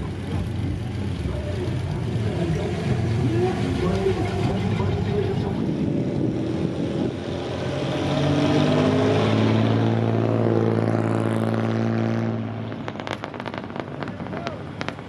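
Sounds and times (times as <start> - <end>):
vehicle engine running: 0.0 - 8.2.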